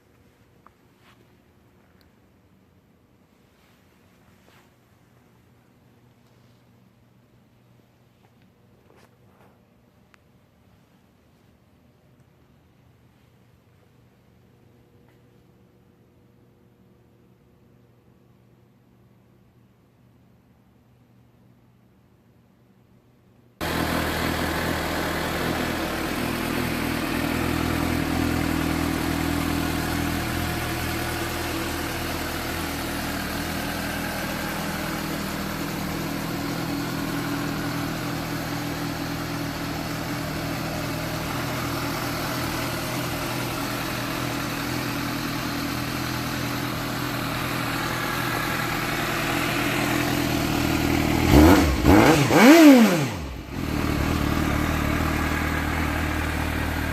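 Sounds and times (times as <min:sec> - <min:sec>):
motorcycle engine idling and revving: 0:23.6 - 0:56.9.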